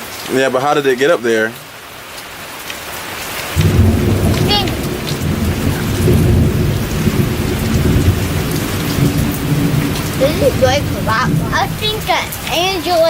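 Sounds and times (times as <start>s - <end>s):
rain falling: 0.0s - 13.0s
loud deep rumble: 3.6s - 13.0s.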